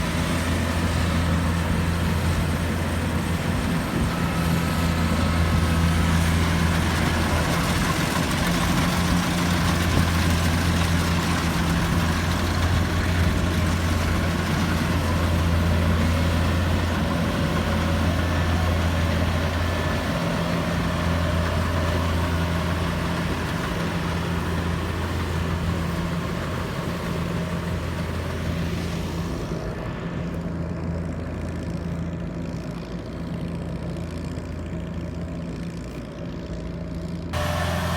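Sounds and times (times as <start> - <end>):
combine harvester running: 0.0 - 37.9.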